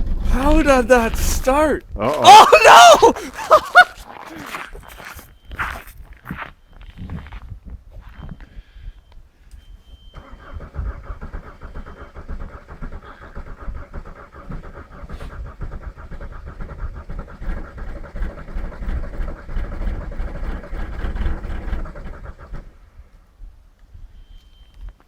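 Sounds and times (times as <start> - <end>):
diesel engine cranking: 10.2 - 22.7.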